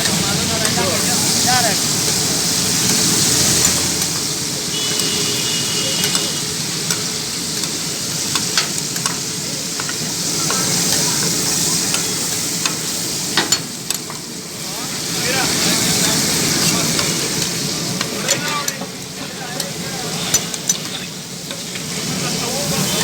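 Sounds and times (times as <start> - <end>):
liver sizzling on griddle: 0.0 - 23.0
metal utensil clicks and scrapes: 2.8 - 5.2, 6.0 - 14.3, 19.6 - 22.0.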